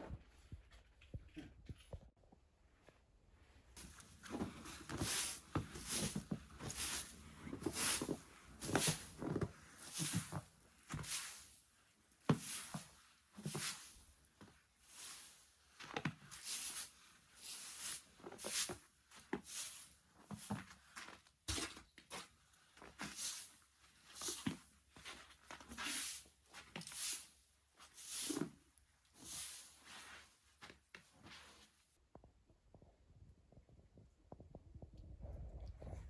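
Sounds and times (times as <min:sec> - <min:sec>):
rhythmic crunching in snow: 0:03.8 - 0:11.6.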